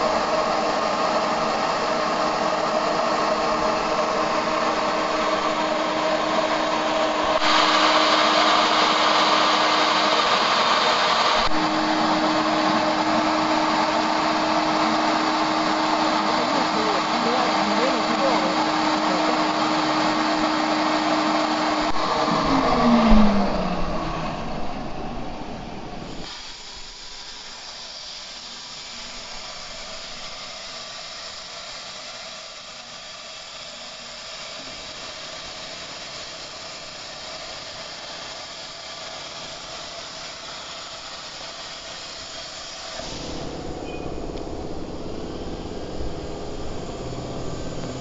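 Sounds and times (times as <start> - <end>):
plasma torch hissing: 0.0 - 48.0
machine tone dropping in pitch: 20.5 - 26.2, 43.0 - 48.0.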